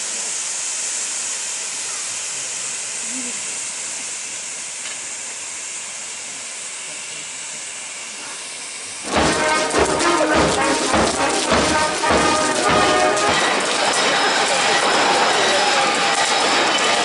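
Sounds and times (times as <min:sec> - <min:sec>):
loud music with thuds: 0:09.0 - 0:13.8.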